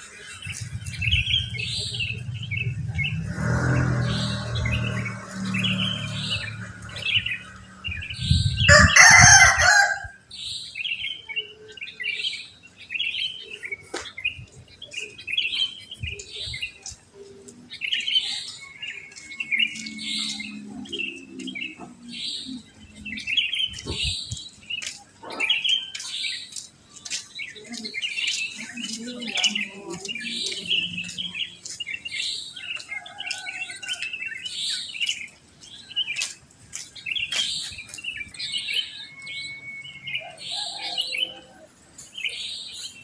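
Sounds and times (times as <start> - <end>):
bulbuls singing bubbly phrases: 27.4 - 31.8.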